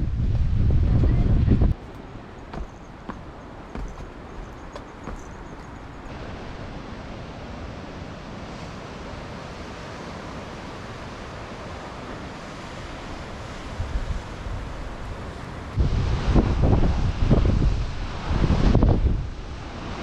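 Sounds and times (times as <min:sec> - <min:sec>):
wind buffeting microphone: 0:00.0 - 0:08.6, 0:13.4 - 0:20.0
sea surf: 0:01.9 - 0:20.0
faint knocks: 0:02.4 - 0:06.1.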